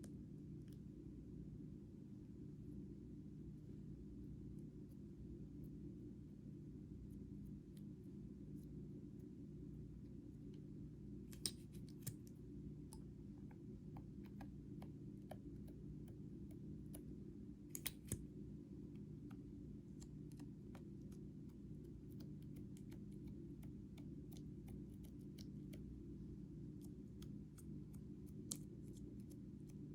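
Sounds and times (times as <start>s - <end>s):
low steady hum: 0.0s - 29.9s
small clicks and taps: 11.3s - 18.2s, 19.0s - 26.0s, 26.7s - 29.9s.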